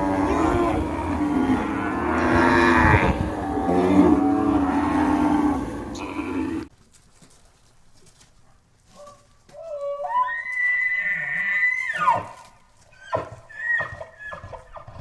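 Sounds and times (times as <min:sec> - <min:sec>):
cattle mooing: 0:00.0 - 0:06.7.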